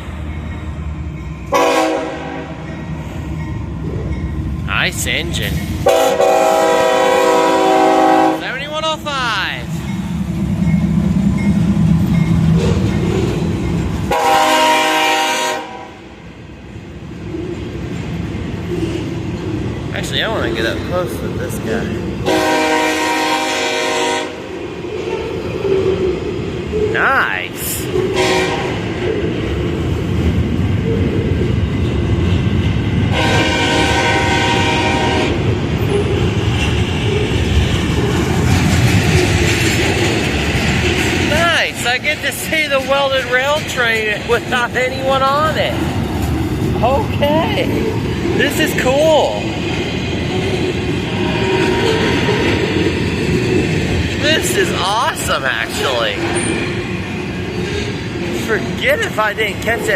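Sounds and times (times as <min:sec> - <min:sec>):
freight train rumbling on rails: 0:00.0 - 0:59.9
train horn blast: 0:01.5 - 0:02.6, 0:05.8 - 0:08.5, 0:14.1 - 0:16.1, 0:22.2 - 0:24.5, 0:28.1 - 0:28.8, 0:33.1 - 0:35.5.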